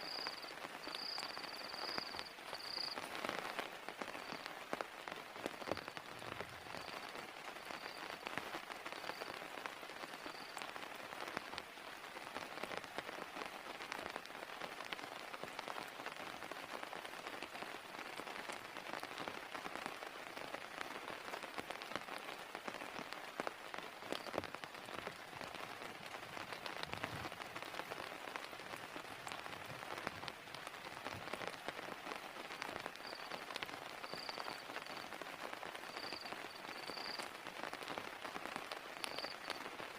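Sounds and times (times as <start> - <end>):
heavy rain falling: 0.0 - 39.9
raindrops ticking close by: 0.0 - 39.9.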